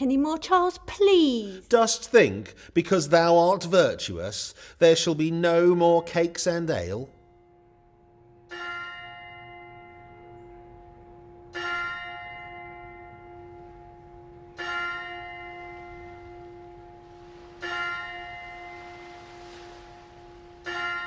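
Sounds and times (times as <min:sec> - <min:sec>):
bell tolling slowly: 0:06.9 - 0:21.0.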